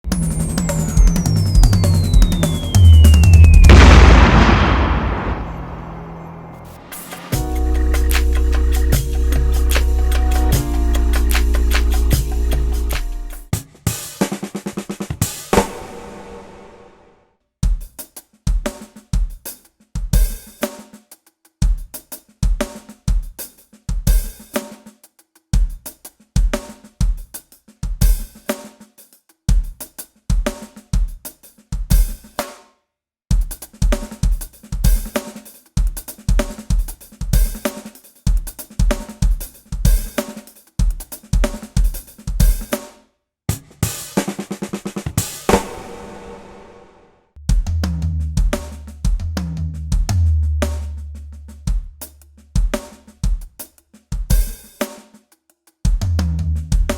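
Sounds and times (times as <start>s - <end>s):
drum kit groove with fills: 0.0s - 4.7s, 6.8s - 16.8s, 17.6s - 32.7s, 33.3s - 56.9s
cymbal ringing: 0.1s - 13.5s.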